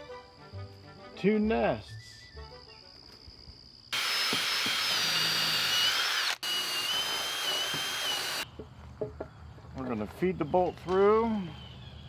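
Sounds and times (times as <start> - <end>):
power drill whining: 4.0 - 8.4.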